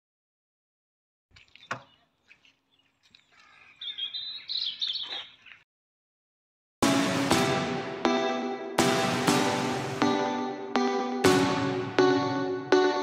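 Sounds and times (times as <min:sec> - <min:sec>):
small birds chirping: 0:01.3 - 0:05.7.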